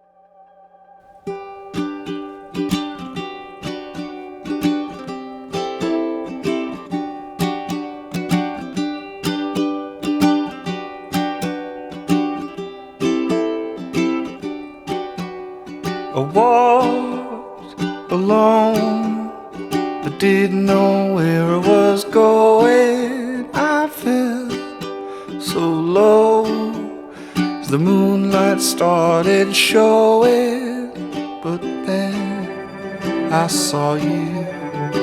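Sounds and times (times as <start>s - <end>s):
plucked guitar picking: 1.2s - 35.0s.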